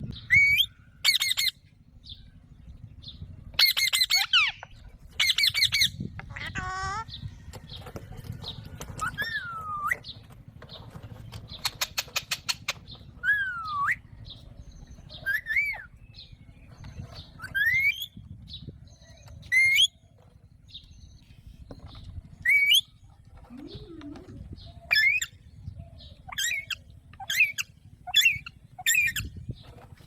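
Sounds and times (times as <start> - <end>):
parakeet squawking: 3.6 - 7.1.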